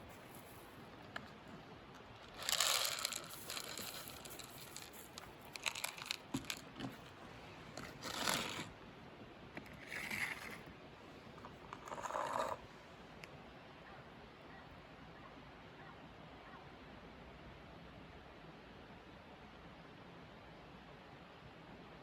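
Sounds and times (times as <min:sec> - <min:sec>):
cat crunching and chewing: 0:00.0 - 0:08.8, 0:09.6 - 0:10.7
rustling: 0:00.0 - 0:08.8.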